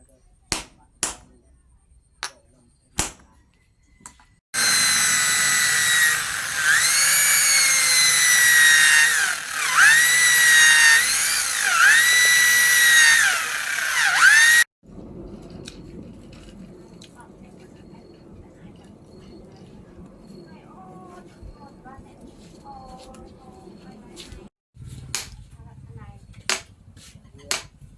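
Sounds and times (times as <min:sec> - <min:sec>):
sharp knocks: 0:00.5 - 0:01.3, 0:03.0 - 0:03.3
power tool motor whining: 0:04.6 - 0:14.7.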